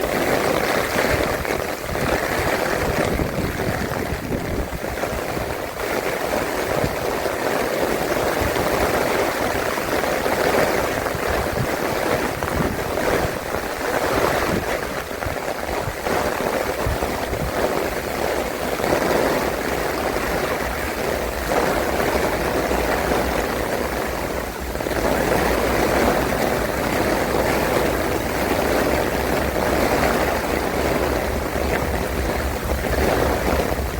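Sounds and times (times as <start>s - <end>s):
steady low rumble: 0.0s - 7.2s, 19.5s - 33.9s
rain: 0.0s - 33.9s
strong wind buffeting microphone: 0.0s - 33.9s.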